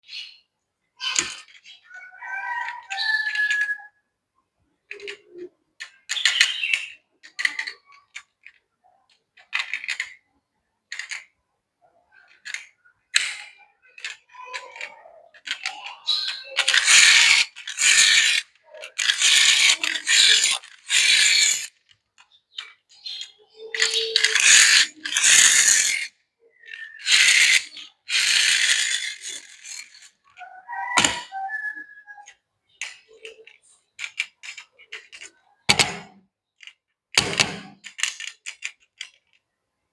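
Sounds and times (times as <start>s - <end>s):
toy cars clicking and knocking: 1.0s - 1.9s, 2.6s - 3.9s, 4.8s - 11.4s, 12.1s - 39.6s
ratchety rasping runs: 16.7s - 21.7s, 24.2s - 26.1s, 27.1s - 30.1s.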